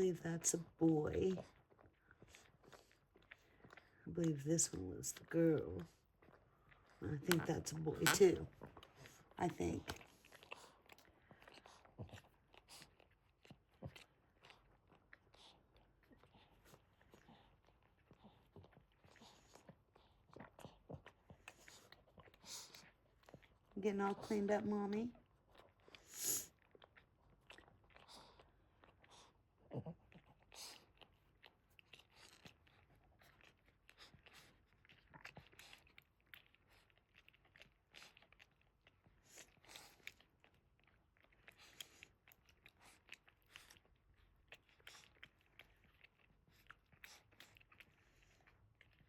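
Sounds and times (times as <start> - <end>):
dog licking puppies: 0.0 - 49.0.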